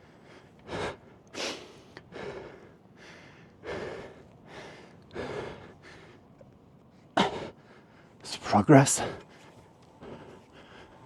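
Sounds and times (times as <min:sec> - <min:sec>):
man breathing hard: 0:00.0 - 0:06.3, 0:09.1 - 0:11.0.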